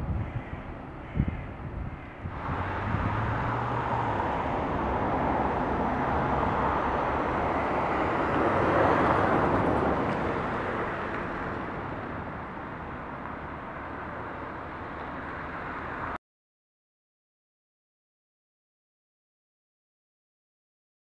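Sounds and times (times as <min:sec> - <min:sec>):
distant train passing: 0:02.3 - 0:15.3.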